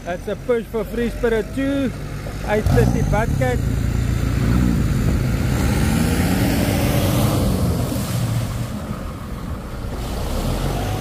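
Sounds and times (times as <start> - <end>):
engines revving: 0.0 - 11.0
breaking surf: 5.6 - 11.0.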